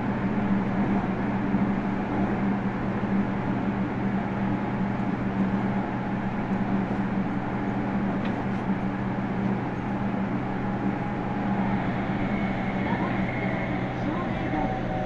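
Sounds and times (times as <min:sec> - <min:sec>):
train car rumbling in motion: 0:00.0 - 0:15.0
low hum: 0:04.1 - 0:15.0.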